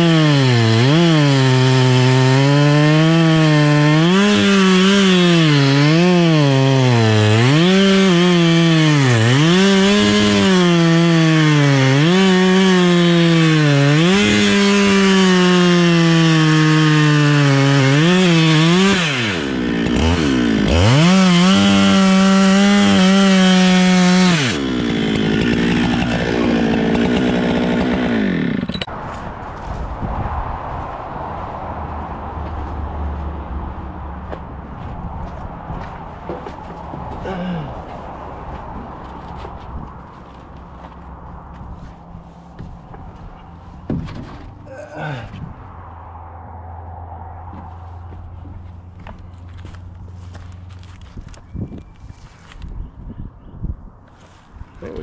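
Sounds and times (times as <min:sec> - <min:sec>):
chainsaw cutting wood: 0:00.0 - 0:28.9.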